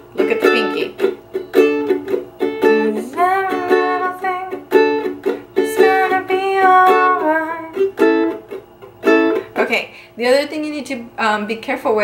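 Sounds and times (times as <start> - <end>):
ukulele strummed in reggae rhythm: 0.0 - 9.5
person singing: 2.4 - 7.9.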